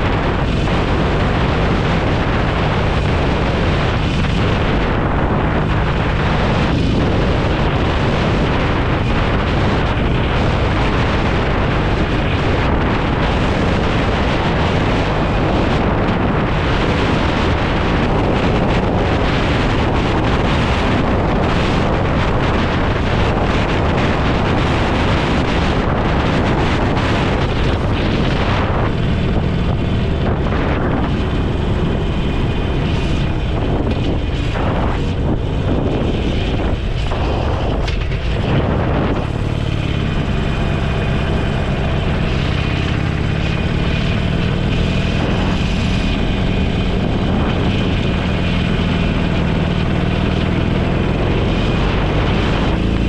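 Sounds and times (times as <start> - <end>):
motorcycle engine and road drone: 0.0 - 53.0
wind rushing over microphone: 0.0 - 53.0.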